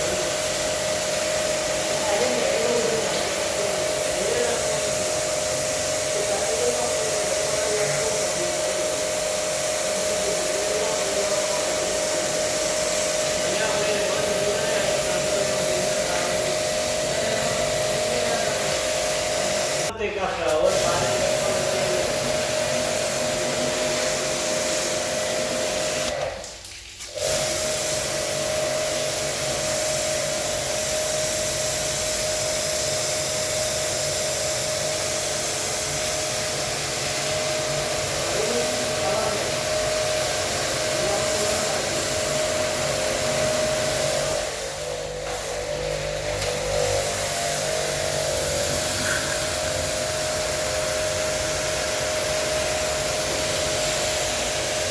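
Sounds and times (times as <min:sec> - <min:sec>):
pressure washer motor humming: 0:00.0 - 0:54.9
water spray hissing: 0:00.0 - 0:54.9.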